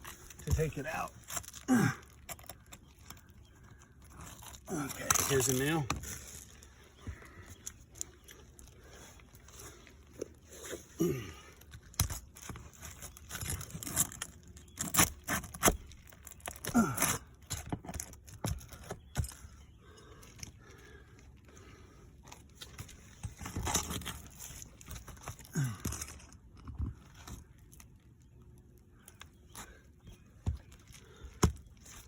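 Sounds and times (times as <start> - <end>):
shingles scraping and tearing: 0.0 - 19.6, 22.4 - 27.9.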